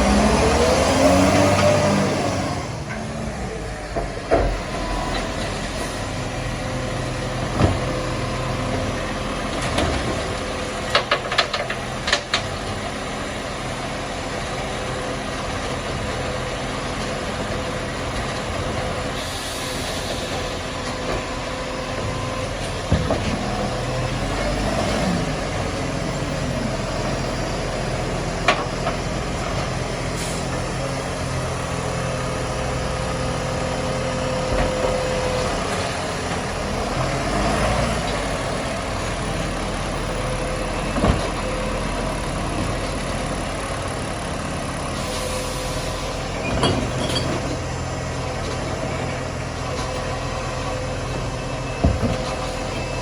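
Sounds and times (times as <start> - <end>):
garbage truck engine running: 0.0 - 53.0.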